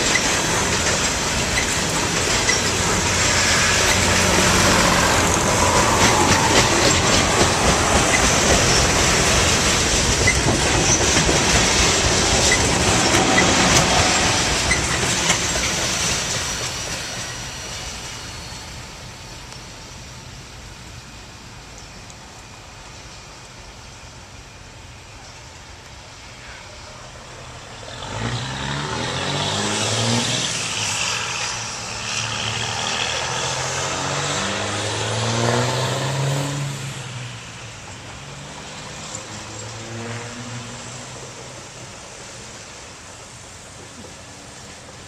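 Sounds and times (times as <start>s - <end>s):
train wheels clacking on rails: 0.0s - 19.8s.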